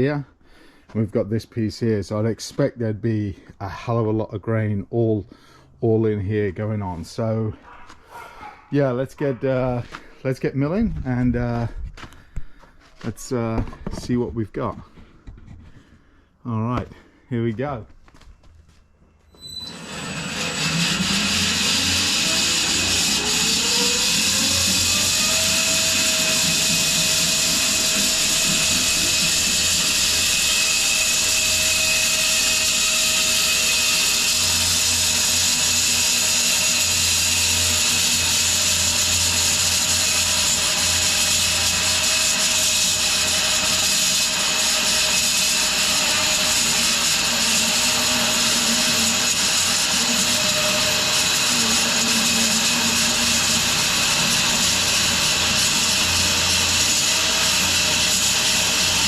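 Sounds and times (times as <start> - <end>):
bandsaw mill running: 19.4 - 59.0.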